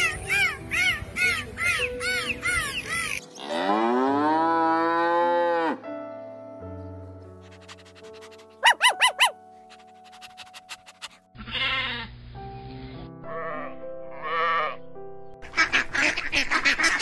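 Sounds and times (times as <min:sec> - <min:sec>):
cow mooing: 0:03.4 - 0:05.8
dolphin squeaks: 0:08.6 - 0:09.4.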